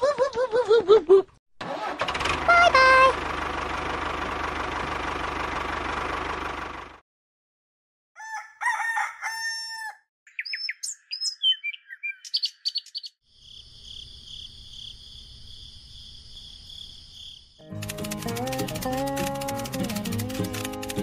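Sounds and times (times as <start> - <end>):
rooster crowing: 8.2 - 10.1
birds chirping: 10.3 - 13.2.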